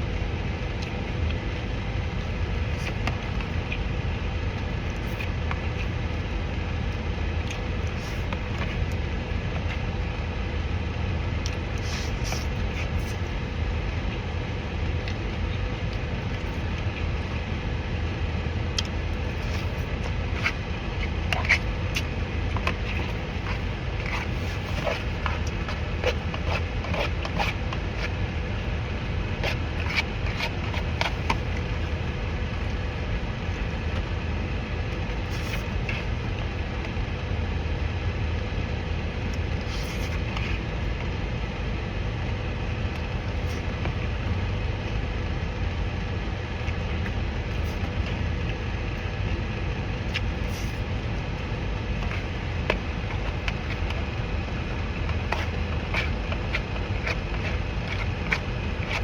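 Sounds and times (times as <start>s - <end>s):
crunchy chewing: 18.8s - 34.0s, 50.1s - 59.0s.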